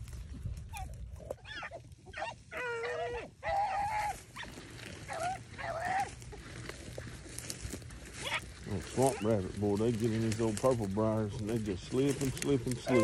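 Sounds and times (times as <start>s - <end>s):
hounds baying: 0.7s - 13.0s.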